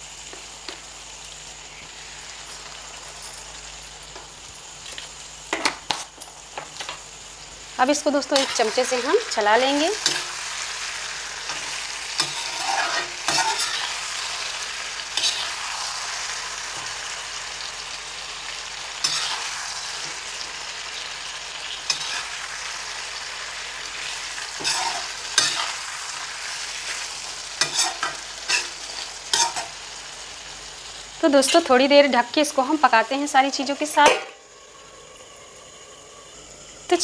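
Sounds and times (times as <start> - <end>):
food sizzling in a pan: 0.0 - 37.0
metal ladle scraping a pan: 11.4 - 14.0, 15.2 - 15.7, 19.0 - 20.1, 21.9 - 22.4, 24.5 - 25.8, 27.6 - 29.7.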